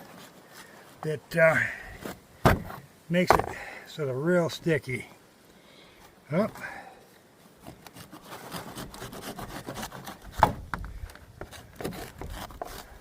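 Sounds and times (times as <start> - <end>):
knife sawing through fruit rind: 8.0 - 10.3.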